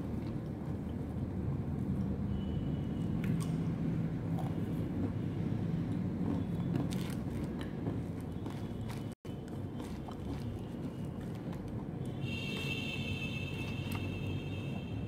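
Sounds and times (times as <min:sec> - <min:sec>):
chewing with crisp crunches: 0:03.1 - 0:05.2, 0:05.9 - 0:12.8.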